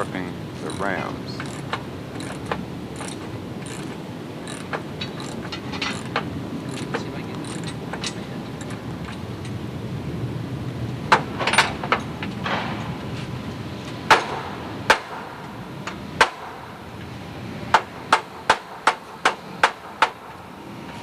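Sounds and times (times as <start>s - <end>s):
hammer blows: 11.1s - 20.4s.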